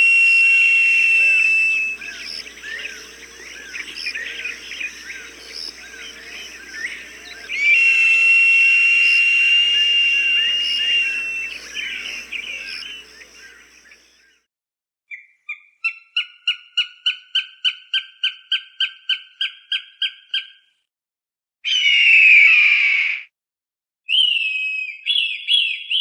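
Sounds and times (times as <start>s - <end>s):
falcon short chirping calls: 0.0s - 14.0s
falcon long whistled cry: 0.0s - 14.1s, 21.7s - 23.2s.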